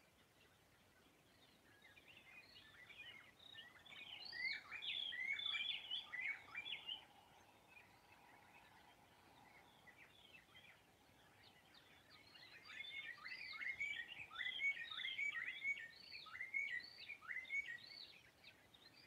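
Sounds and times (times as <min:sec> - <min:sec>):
faint bird chirps: 0:00.0 - 0:19.0
bird whistling song: 0:01.9 - 0:07.1, 0:11.7 - 0:18.3.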